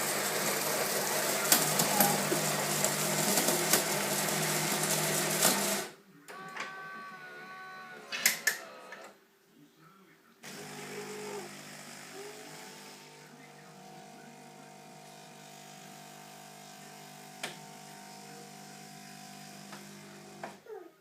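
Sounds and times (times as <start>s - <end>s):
coffee machine pump humming: 0.0s - 5.8s, 10.5s - 20.6s.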